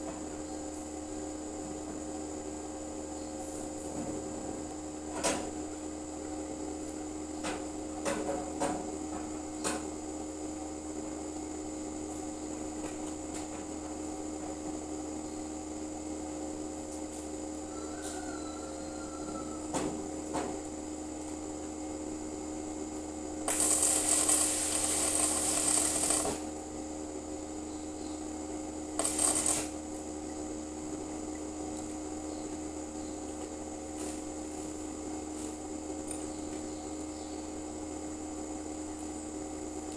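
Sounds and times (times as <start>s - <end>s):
electrical hum: 8.9s - 39.9s
arc welding crackling hiss: 23.4s - 26.5s, 28.9s - 29.8s.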